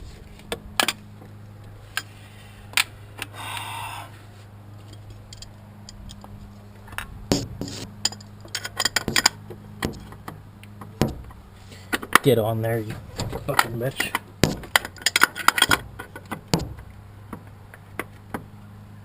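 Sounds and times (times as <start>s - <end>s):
steady low hum: 0.0s - 19.0s
metal tools clinking and scraping: 7.7s - 9.4s, 12.8s - 16.4s.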